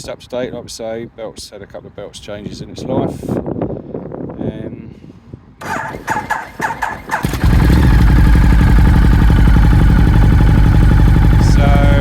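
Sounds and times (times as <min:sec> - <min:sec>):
motorcycle starter cranking: 0:05.6 - 0:11.4
motorcycle engine running loud: 0:05.6 - 0:12.0.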